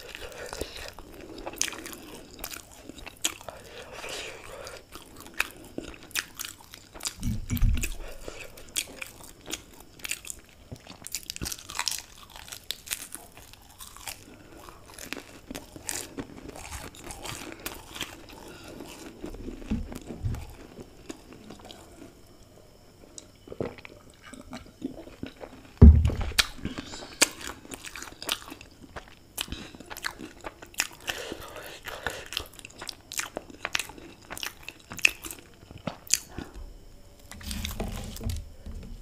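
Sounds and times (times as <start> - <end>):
chewing crunchy pastry: 0.0 - 39.0
loud low thump: 25.8 - 26.5.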